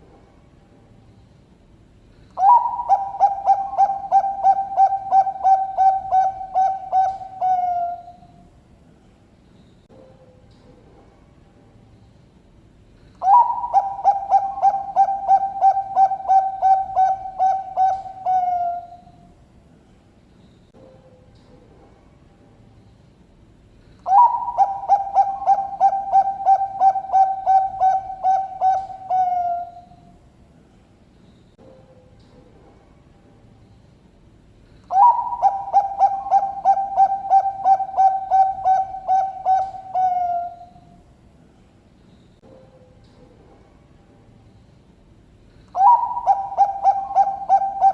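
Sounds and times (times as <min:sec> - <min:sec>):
dove cooing: 0:02.4 - 0:08.3, 0:13.2 - 0:19.2, 0:24.0 - 0:30.0, 0:34.9 - 0:40.8, 0:45.7 - 0:47.9.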